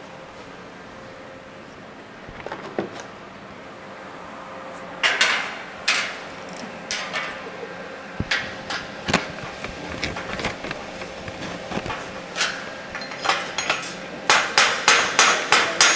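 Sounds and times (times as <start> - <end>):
hammer striking metal: 12.4 - 15.9.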